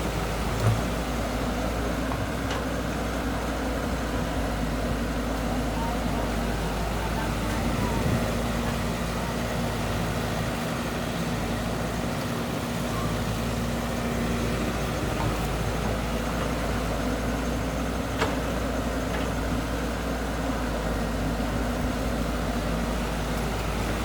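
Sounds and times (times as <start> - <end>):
heavy diesel engine running: 0.0 - 24.0.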